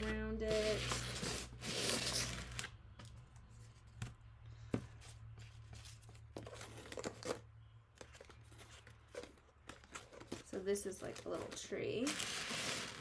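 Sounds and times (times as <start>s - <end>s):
leaves and cardboard rustling: 0.0s - 2.7s.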